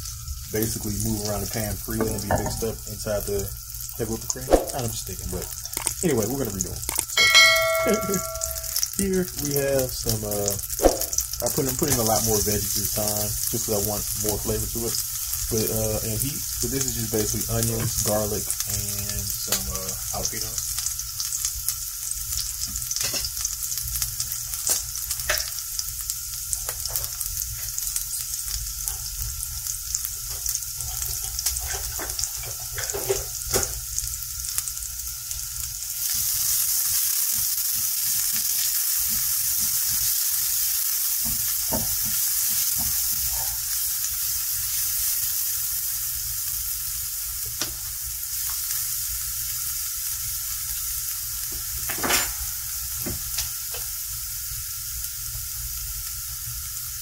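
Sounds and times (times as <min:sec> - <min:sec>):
vegetables sizzling in butter: 0:00.0 - 0:57.0
crackles: 0:03.4 - 0:07.2.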